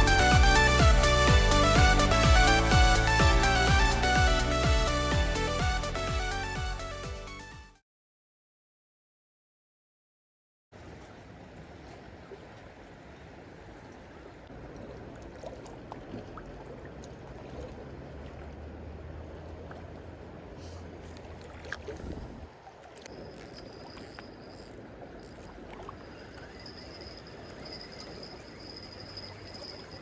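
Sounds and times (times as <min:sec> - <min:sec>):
low boat engine hum: 0:00.0 - 0:07.4, 0:10.8 - 0:30.0
water lapping: 0:10.8 - 0:30.0
insect trilling: 0:23.0 - 0:30.0.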